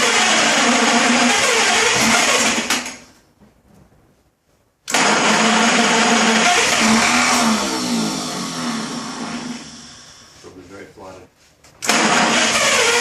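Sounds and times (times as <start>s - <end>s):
car starter motor cranking: 0.0s - 3.1s, 4.9s - 10.2s, 11.8s - 13.0s.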